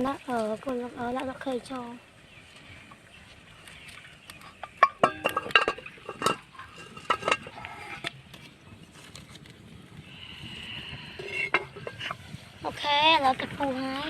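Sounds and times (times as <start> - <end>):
dishes and utensils clinking: 4.6 - 8.1, 11.2 - 12.2.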